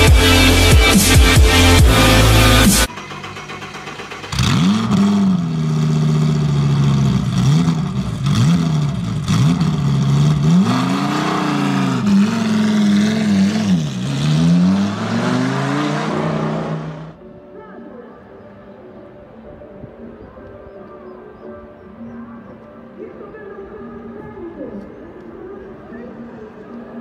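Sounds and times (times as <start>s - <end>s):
car engine revving: 0.0s - 17.2s.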